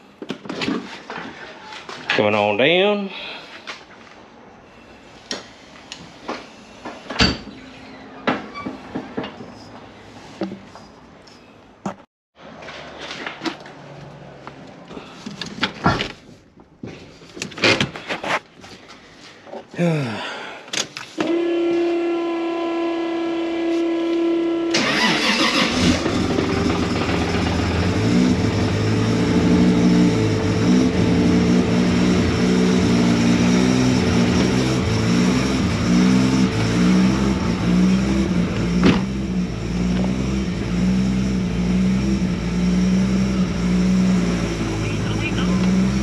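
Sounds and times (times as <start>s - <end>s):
starter motor whining: 24.7s - 33.1s
car engine idling: 24.9s - 46.0s.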